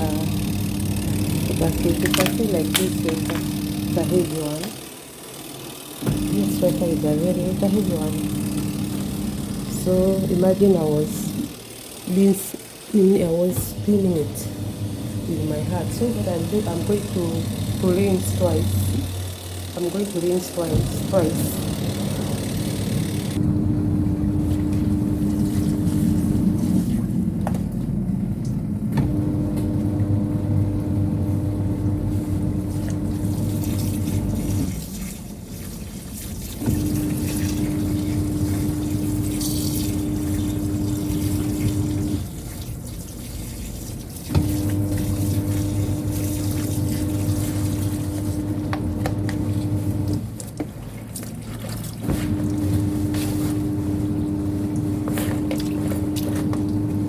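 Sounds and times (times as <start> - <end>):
washing machine motor humming: 0.0 - 57.0
water sloshing: 32.5 - 57.0.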